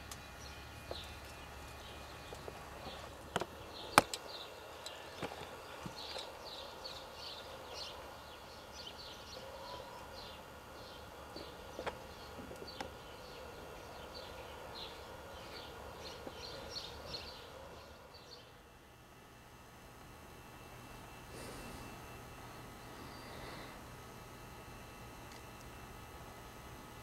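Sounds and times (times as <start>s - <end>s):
small birds chirping: 0.0s - 18.8s.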